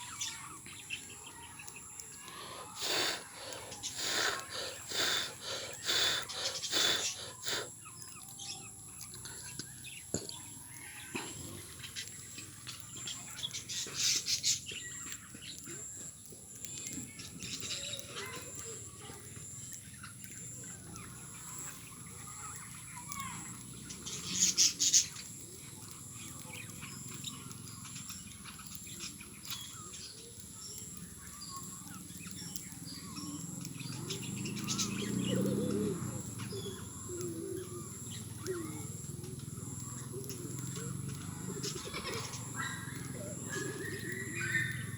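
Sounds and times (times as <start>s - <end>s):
lovebirds chirping: 0.0s - 44.9s
loud shrill bird calls: 40.8s - 44.9s.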